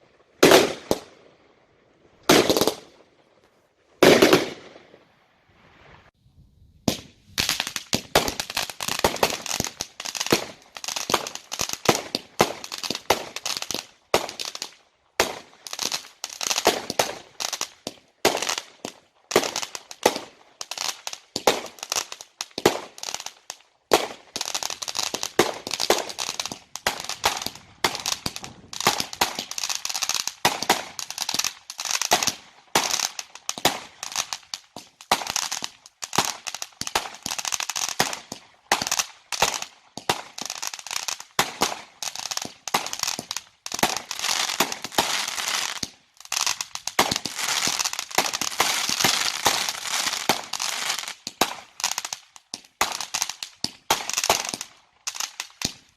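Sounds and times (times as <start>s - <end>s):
fireworks bangs and crackles: 0.0s - 1.4s, 2.2s - 6.2s, 6.8s - 55.9s.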